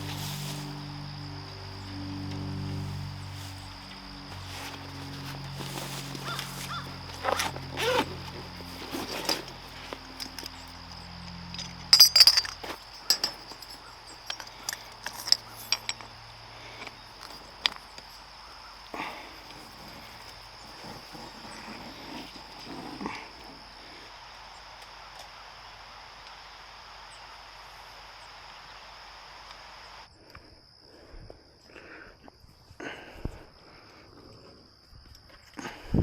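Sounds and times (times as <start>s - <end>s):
low steady hum: 0.0s - 30.1s
sharp clinks and knocks: 8.9s - 18.2s.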